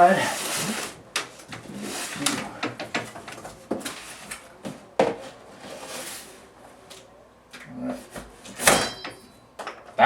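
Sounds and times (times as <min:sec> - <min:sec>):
cardboard scraping and tearing: 0:00.0 - 0:01.0.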